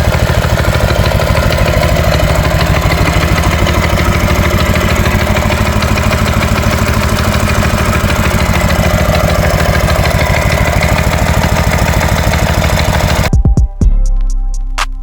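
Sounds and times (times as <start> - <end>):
mini bike engine idling: 0.0 - 13.3.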